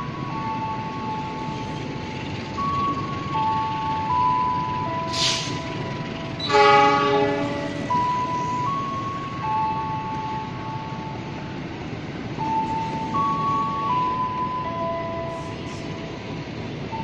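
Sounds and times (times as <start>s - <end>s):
train wheels squealing: 1.1s - 6.6s.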